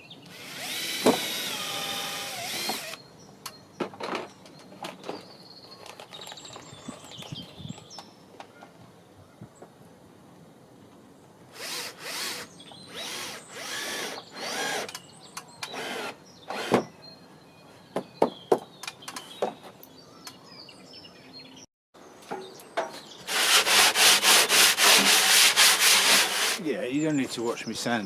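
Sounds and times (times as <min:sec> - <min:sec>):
power drill bursts: 0:00.3 - 0:03.0, 0:11.6 - 0:15.0, 0:15.7 - 0:16.8
sanding wood: 0:23.3 - 0:26.6.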